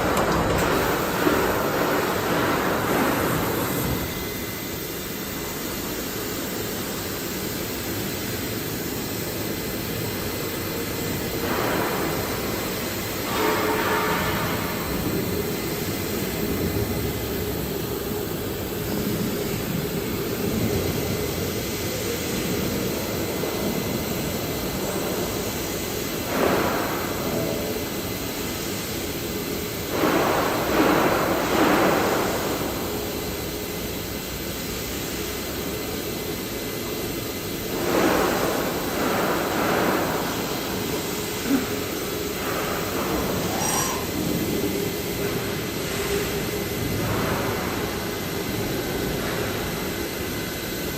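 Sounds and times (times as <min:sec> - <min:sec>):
machining center running: 0:00.0 - 0:26.0, 0:40.3 - 0:46.2.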